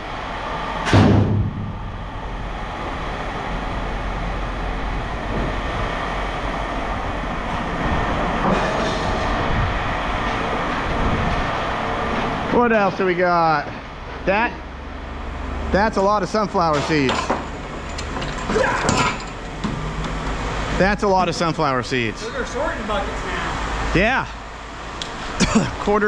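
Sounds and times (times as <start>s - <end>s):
rumbling mechanical noise: 0.0s - 26.0s
heavy scrap metal clank: 0.8s - 1.9s, 8.4s - 9.2s, 16.7s - 19.4s.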